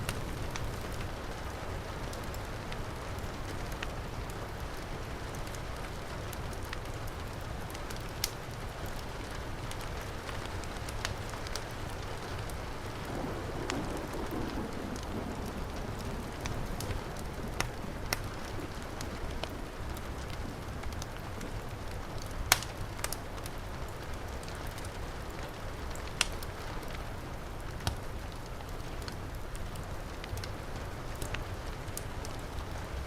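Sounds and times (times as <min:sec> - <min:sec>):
fire popping: 0:00.0 - 0:02.4, 0:06.5 - 0:33.0
heavy rain: 0:00.0 - 0:33.0
wood fire crackling: 0:00.0 - 0:33.0.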